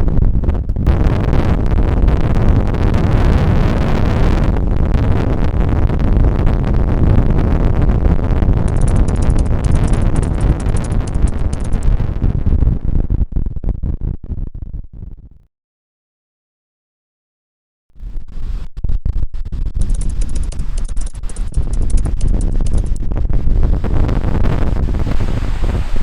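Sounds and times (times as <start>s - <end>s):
wind buffeting microphone: 0.0s - 14.4s, 19.6s - 26.0s.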